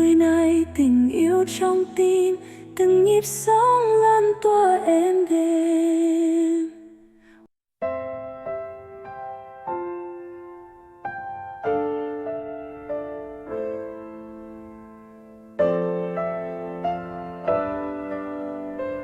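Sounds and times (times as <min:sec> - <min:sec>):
solo piano slow chords: 0:07.8 - 0:19.0.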